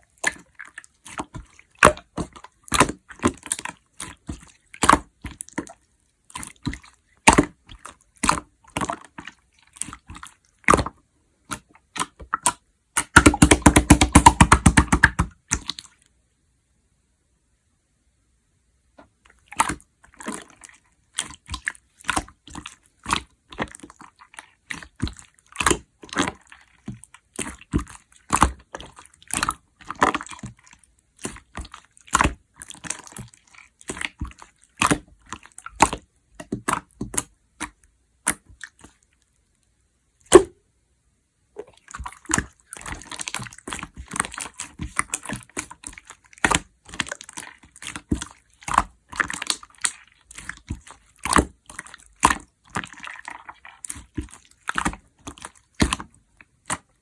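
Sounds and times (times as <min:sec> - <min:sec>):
slime squelching: 0:00.0 - 0:16.2, 0:19.0 - 0:40.6, 0:41.5 - 0:57.0
sticky slime pops and clicks: 0:13.0 - 0:15.3.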